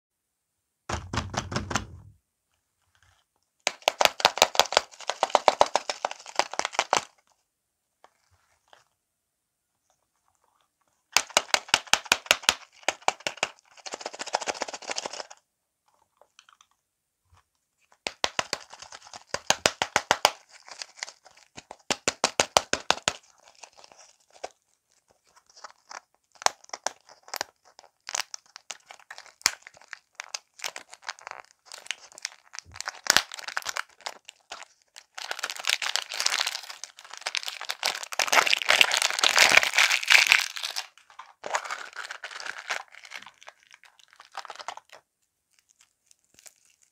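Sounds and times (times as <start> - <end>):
plastic wrappers crinkling: 3.1 - 7.3, 11.2 - 15.4, 18.0 - 46.9
wrapper tearing open: 18.1 - 22.0, 22.8 - 46.9.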